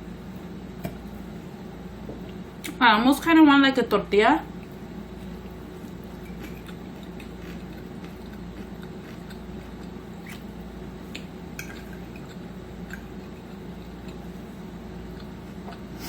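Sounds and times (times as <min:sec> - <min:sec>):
steady low hum: 0:00.0 - 0:16.0
person chewing: 0:04.6 - 0:14.4, 0:15.0 - 0:16.0.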